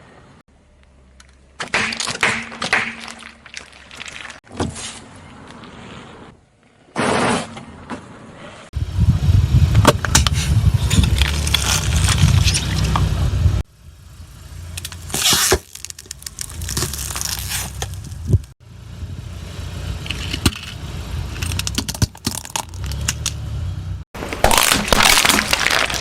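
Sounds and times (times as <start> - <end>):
car engine idling: 12.8 - 15.1
tyre crushing objects: 15.0 - 18.5, 24.2 - 26.0.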